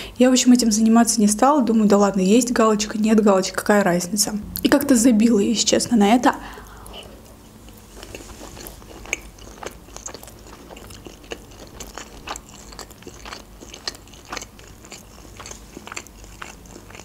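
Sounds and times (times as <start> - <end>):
person chewing food: 6.5 - 17.0.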